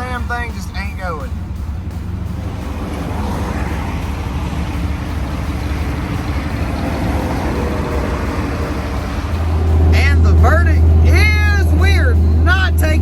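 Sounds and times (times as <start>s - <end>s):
road noise: 0.0s - 13.0s
truck engine running: 0.0s - 13.0s.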